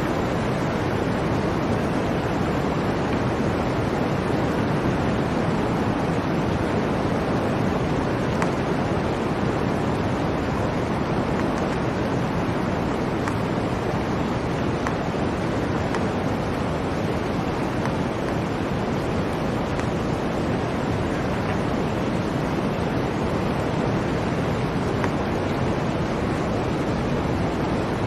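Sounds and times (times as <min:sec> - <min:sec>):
blizzard wind rushing: 0:00.0 - 0:28.0
faint ticks: 0:08.4 - 0:08.6.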